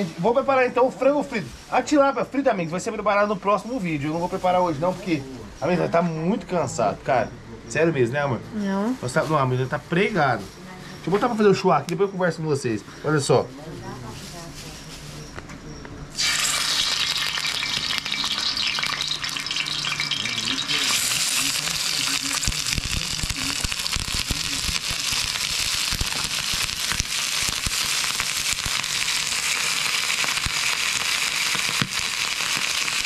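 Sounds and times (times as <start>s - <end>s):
chicken sizzling in hot oil: 16.2s - 33.0s.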